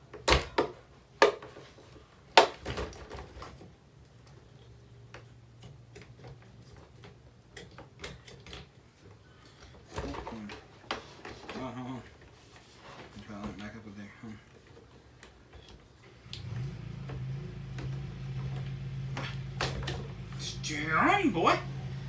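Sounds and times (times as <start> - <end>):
plastic parts clicking and rattling: 0.2 - 12.3.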